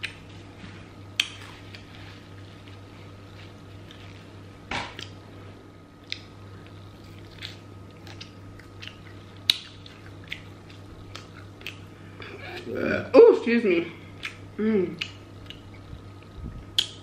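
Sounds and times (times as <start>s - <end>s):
steady low hum: 0.0s - 17.0s
chewing crispy fried chicken: 6.0s - 12.8s
wet mouth clicks: 14.2s - 15.7s, 16.8s - 17.0s.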